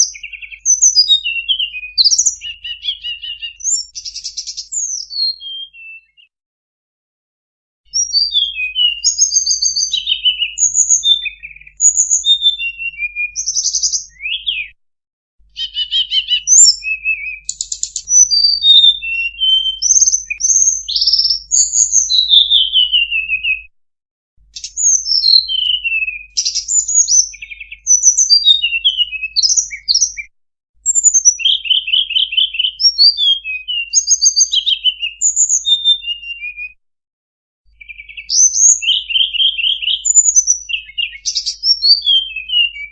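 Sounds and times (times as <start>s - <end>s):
bird song whistles and trills: 0.0s - 6.3s, 7.9s - 14.8s, 15.5s - 23.7s, 24.4s - 36.8s, 37.7s - 42.9s.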